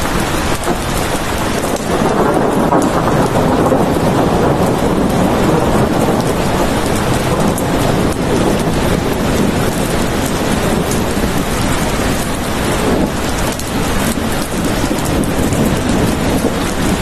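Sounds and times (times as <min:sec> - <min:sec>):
loud rainfall: 0:00.0 - 0:17.0
thunder rumbling: 0:00.0 - 0:17.0.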